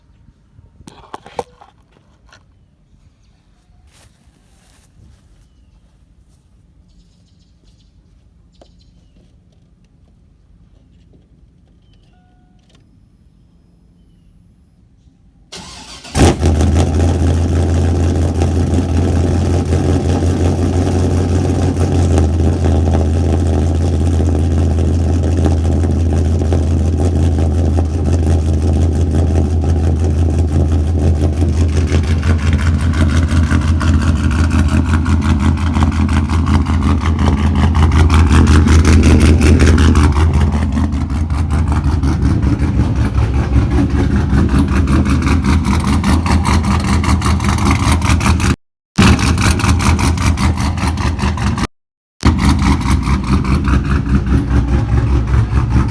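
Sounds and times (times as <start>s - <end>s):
engine bark: 15.5s - 55.9s
engine cranking: 15.5s - 55.9s
loud engine idle: 15.6s - 48.2s, 52.2s - 55.9s.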